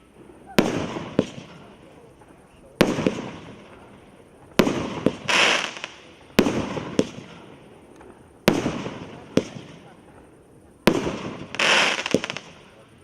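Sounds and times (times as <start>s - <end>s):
firework bangs: 0.0s - 13.0s
firework crack: 0.0s - 13.0s
firework hiss: 0.0s - 13.0s.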